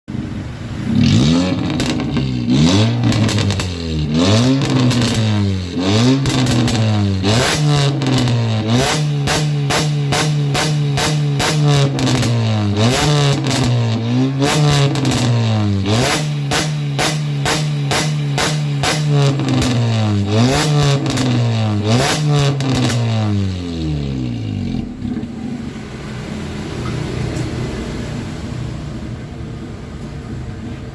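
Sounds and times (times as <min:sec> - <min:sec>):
car engine revving: 0:00.1 - 0:29.2.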